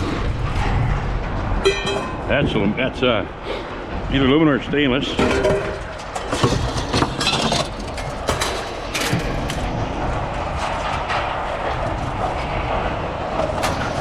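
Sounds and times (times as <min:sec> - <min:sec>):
vehicle engine rumble: 0:00.0 - 0:14.0
scrap metal clanking: 0:01.6 - 0:02.4, 0:05.1 - 0:09.6.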